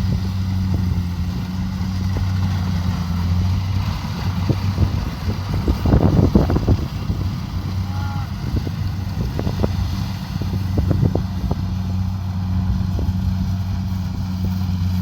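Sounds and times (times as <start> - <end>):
combine harvester diesel engine: 0.0 - 15.0.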